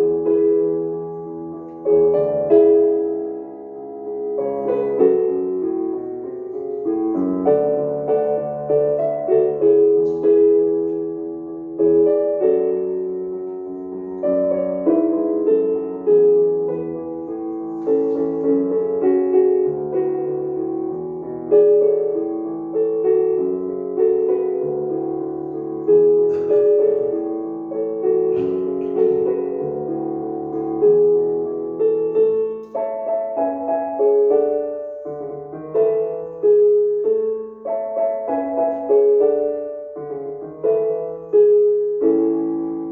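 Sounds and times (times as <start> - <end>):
piano playing melodic piece: 0.0 - 42.9.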